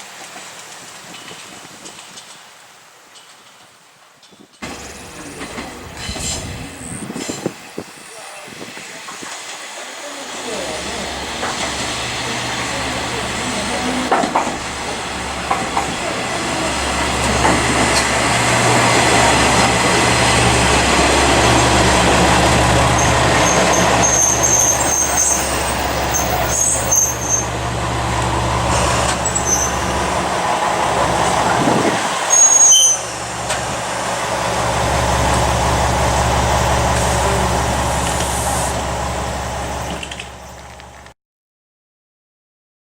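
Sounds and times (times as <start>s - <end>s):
rail running noise: 0.0s - 41.1s
diesel railcar engine running: 4.6s - 41.1s
high-pitched wheel squeals: 23.0s - 27.6s, 28.8s - 30.0s, 32.3s - 33.3s.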